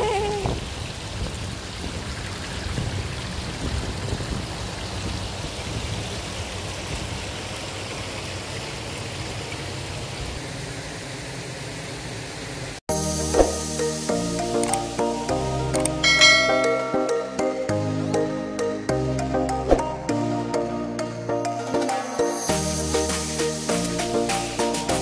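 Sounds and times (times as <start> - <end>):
flowing water rushing: 0.0 - 14.0, 16.0 - 17.4
music with bell-like notes: 13.2 - 25.0.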